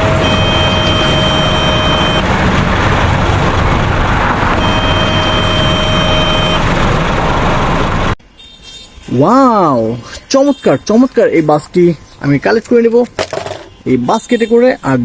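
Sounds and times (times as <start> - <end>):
horn-like tone: 0.0 - 2.4, 4.6 - 6.7.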